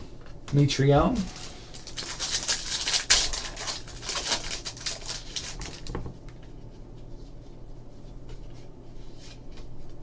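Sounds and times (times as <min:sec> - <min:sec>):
wrapper tearing and crinkling: 0:01.2 - 0:06.0.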